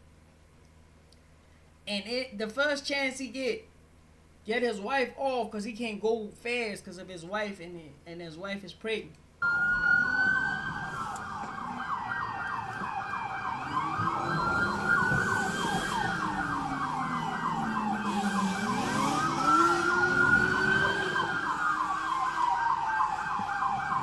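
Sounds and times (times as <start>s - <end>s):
police siren wail: 9.4s - 24.0s
police siren yelp: 9.4s - 24.0s.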